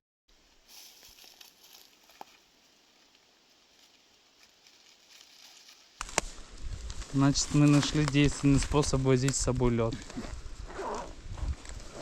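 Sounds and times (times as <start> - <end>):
faint rustling: 0.5 - 9.0.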